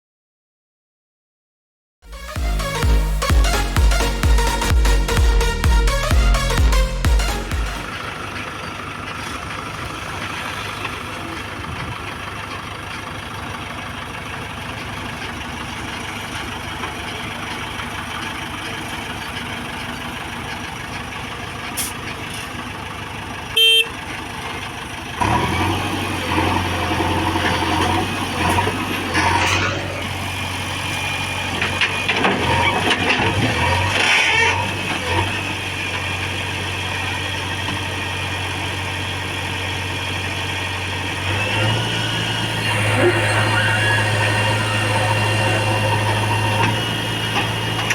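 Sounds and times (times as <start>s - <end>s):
heavy diesel engine running: 2.1s - 47.9s
short horn beep: 23.6s - 24.0s.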